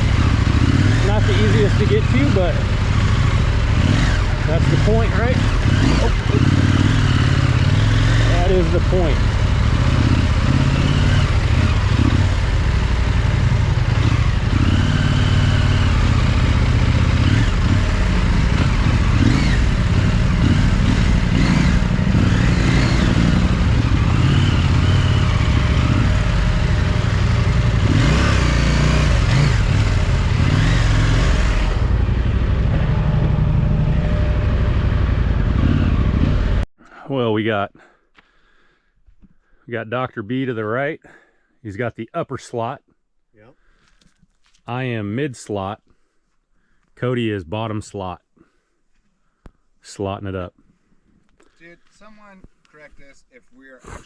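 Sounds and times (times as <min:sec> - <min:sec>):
motorcycle engine running: 0:00.0 - 0:36.7.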